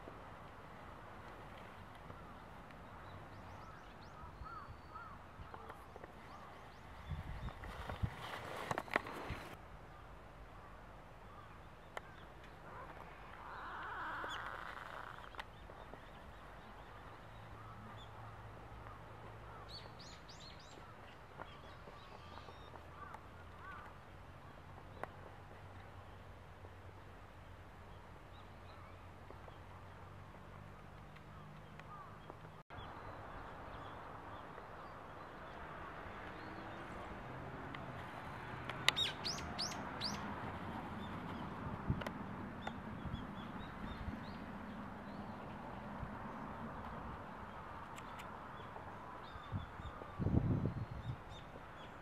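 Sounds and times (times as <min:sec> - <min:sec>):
faint outdoor background: 0:00.0 - 0:52.0
birds calling: 0:01.8 - 0:26.3, 0:30.6 - 0:37.1, 0:38.7 - 0:41.6
bird chirping: 0:38.9 - 0:40.3.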